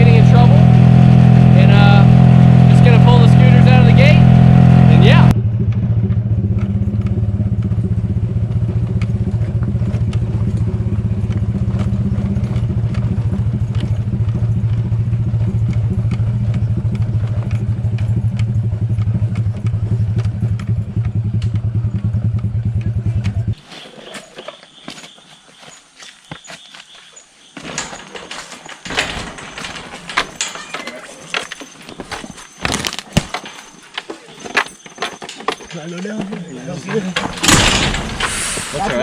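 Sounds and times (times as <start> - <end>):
motor scooter engine running: 0.0 - 23.6.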